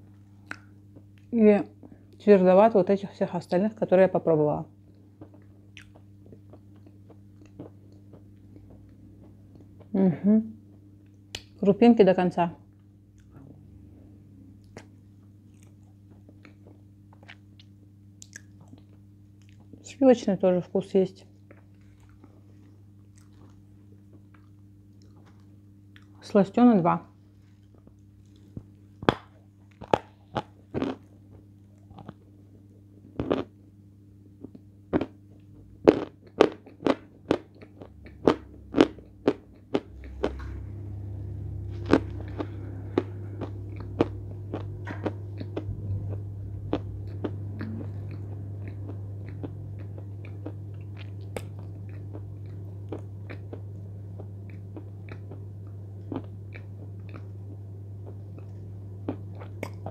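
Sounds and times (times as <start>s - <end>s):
steady low hum: 0.0s - 59.9s
chewing marshmallow: 4.9s - 10.0s, 14.6s - 19.8s, 21.5s - 26.3s, 27.5s - 33.5s, 34.4s - 40.4s, 41.6s - 59.9s.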